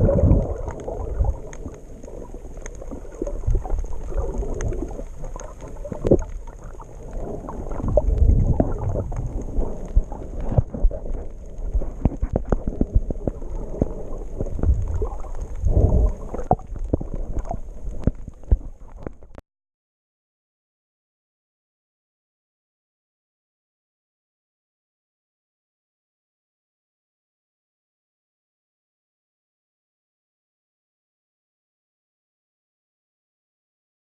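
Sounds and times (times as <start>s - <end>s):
low rumbles: 0.0s - 19.3s
underwater sloshing and gurgling: 0.0s - 19.4s.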